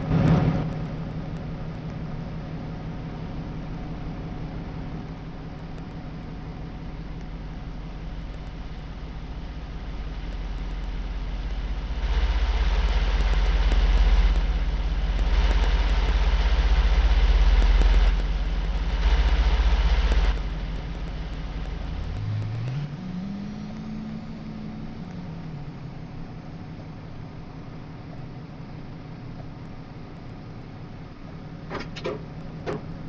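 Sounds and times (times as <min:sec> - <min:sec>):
vehicle engine running: 0:00.0 - 0:33.0
rising and falling tone: 0:07.5 - 0:26.5.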